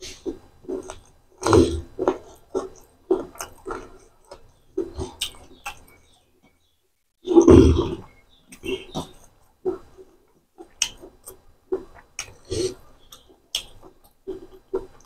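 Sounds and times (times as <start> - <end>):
chewing with wet mouth smacks: 0.2 - 6.0, 10.6 - 12.4, 13.0 - 15.0.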